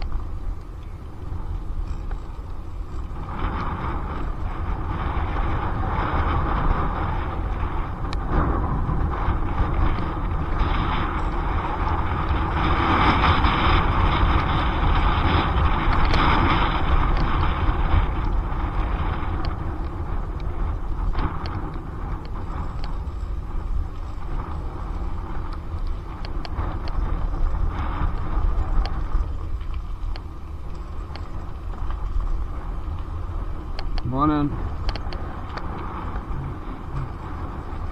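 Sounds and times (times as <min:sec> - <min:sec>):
light ticks: 0:00.0 - 0:04.0, 0:19.3 - 0:23.3, 0:23.9 - 0:34.1, 0:34.8 - 0:37.6
tyre and road rumble: 0:00.0 - 0:37.9
wind buffeting microphone: 0:00.0 - 0:37.9.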